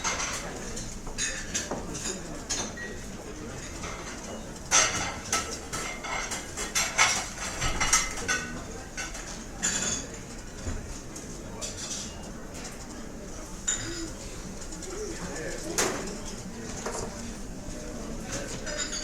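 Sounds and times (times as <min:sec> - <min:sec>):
murmur of diners: 0:00.0 - 0:19.0
cutlery and dishes clinking: 0:03.6 - 0:10.3, 0:18.2 - 0:19.0.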